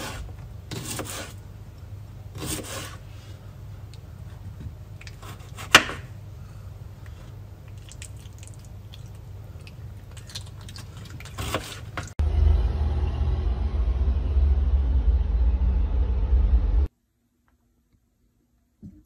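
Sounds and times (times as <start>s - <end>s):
knife scraping board: 0.0s - 1.4s, 2.3s - 3.3s, 5.1s - 6.1s, 11.3s - 12.1s
low steady hum: 3.0s - 19.0s.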